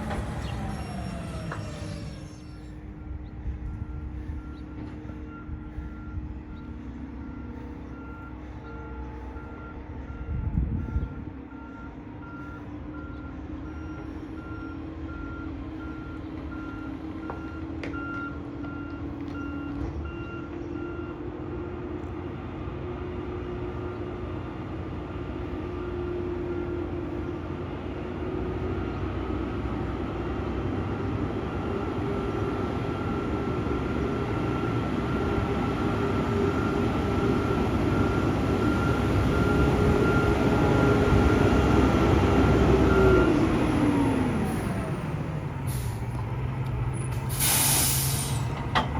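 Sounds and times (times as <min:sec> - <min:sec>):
diesel engine running: 0:00.0 - 0:48.9
backup alarm beeping: 0:34.6 - 0:46.0.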